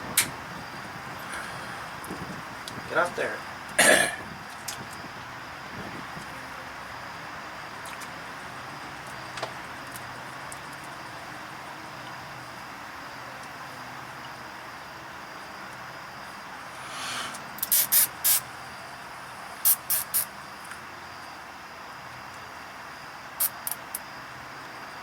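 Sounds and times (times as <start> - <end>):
steady hiss: 0.0 - 4.1, 16.2 - 21.0, 22.4 - 24.8.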